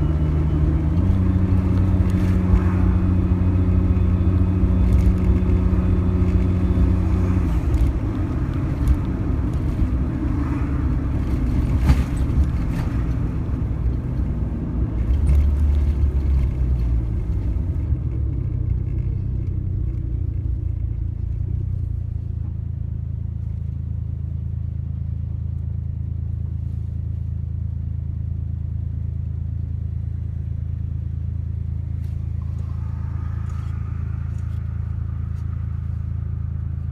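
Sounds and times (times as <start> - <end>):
car engine running: 0.0 - 36.9.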